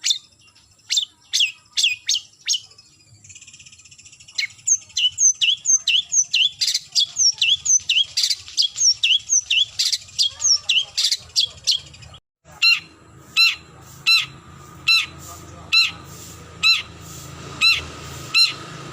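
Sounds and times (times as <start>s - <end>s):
bird squeaky calls: 0.0s - 17.0s, 17.6s - 18.8s
bird harsh squawking: 4.4s - 18.9s.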